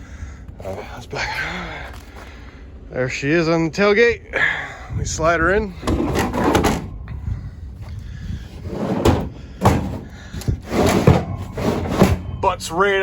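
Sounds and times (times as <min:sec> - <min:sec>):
wooden box scraping on truck bed: 0:05.8 - 0:06.9, 0:08.5 - 0:12.4
knocks and thuds: 0:09.0 - 0:12.4.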